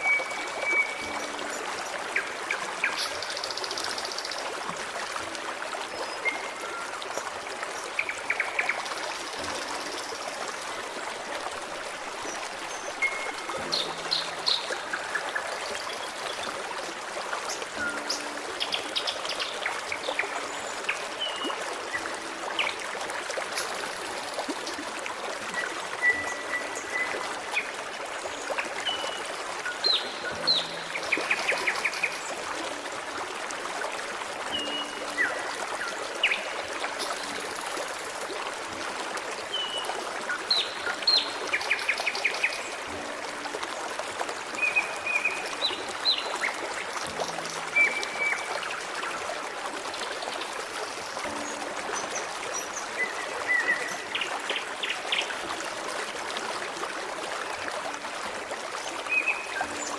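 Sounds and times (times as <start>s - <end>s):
stream babbling: 0.0s - 59.9s.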